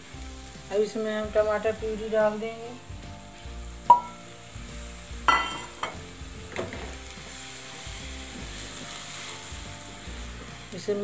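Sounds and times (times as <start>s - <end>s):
vegetables sizzling in a pan: 0.0s - 11.0s
knocks against the pan: 5.3s - 7.0s.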